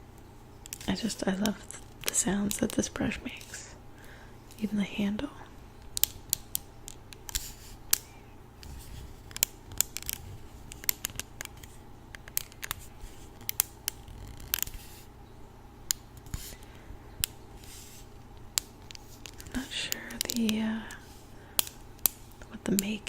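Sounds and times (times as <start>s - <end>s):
scratchy brush strokes: 12.6s - 15.1s, 17.6s - 18.2s.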